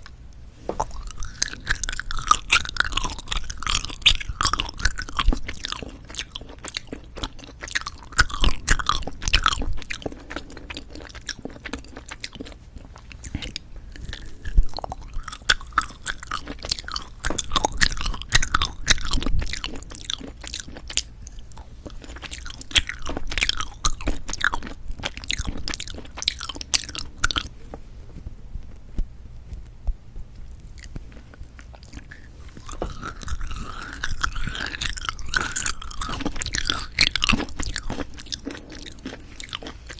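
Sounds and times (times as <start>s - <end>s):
chewing and biting candy: 0.0s - 27.8s, 30.4s - 39.9s.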